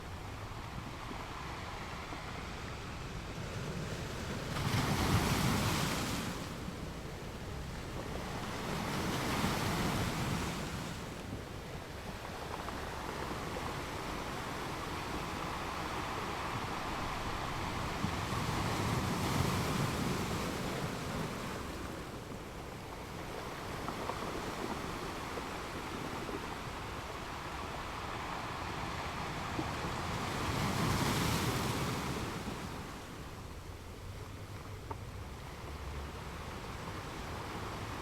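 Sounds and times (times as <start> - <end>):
ocean waves breaking on beach: 0.0 - 34.5, 35.1 - 38.0.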